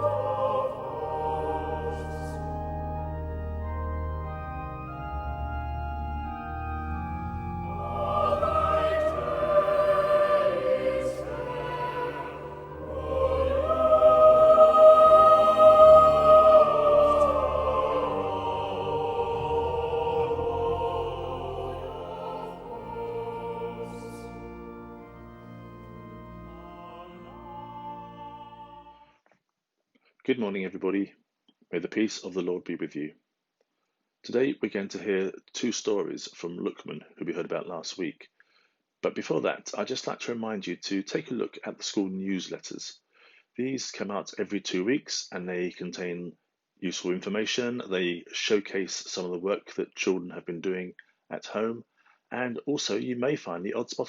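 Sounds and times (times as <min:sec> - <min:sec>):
voices singing: 0:00.0 - 0:02.9, 0:07.6 - 0:29.0
organ chords: 0:00.0 - 0:29.0.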